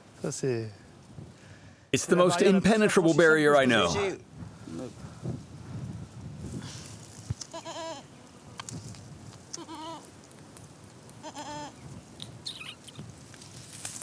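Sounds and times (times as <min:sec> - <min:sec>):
goats bleating: 0:07.5 - 0:08.1, 0:09.5 - 0:10.1, 0:11.2 - 0:11.8.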